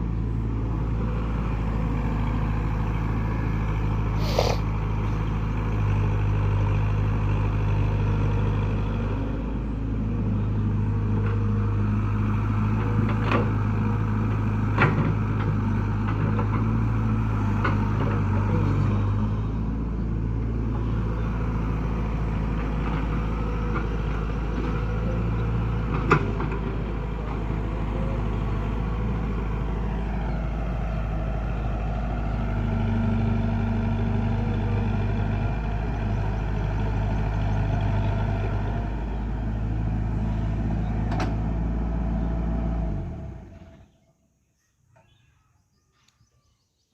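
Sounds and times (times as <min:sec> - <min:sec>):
diesel machinery running: 0:00.0 - 0:44.0.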